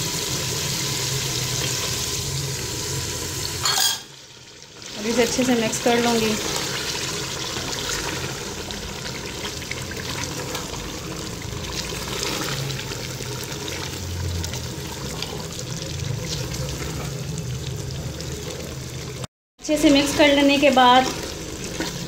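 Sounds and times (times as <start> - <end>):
curry sizzling in a pot: 0.0 - 22.0
wooden spoon scraping a pot: 20.1 - 22.0.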